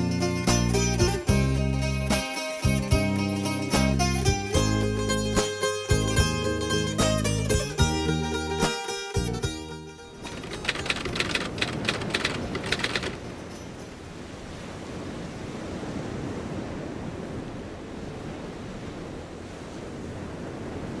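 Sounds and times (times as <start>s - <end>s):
ocean waves: 10.0s - 21.0s
typewriter key clicks: 10.3s - 13.2s.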